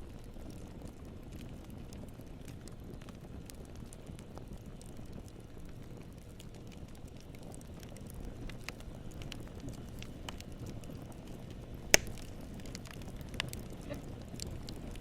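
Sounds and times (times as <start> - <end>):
campfire crackling: 0.0 - 15.0
wood popping in fire: 0.0 - 15.0.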